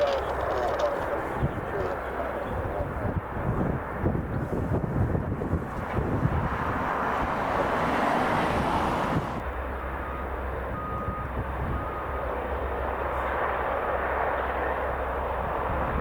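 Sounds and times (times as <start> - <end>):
helicopter engines and rotors: 0.0 - 7.9, 8.5 - 16.0.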